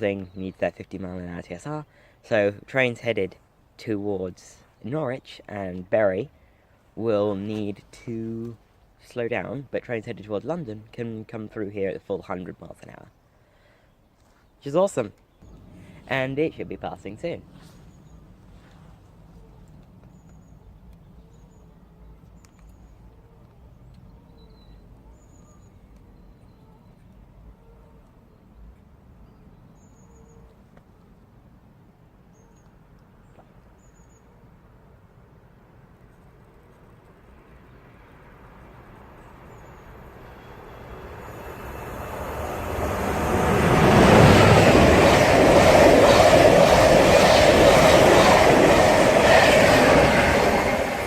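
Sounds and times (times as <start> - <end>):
birds chirping: 10.4 - 30.5, 38.6 - 51.0
train passing at speed: 15.4 - 18.6, 37.6 - 51.0
low background rumble: 15.4 - 21.0.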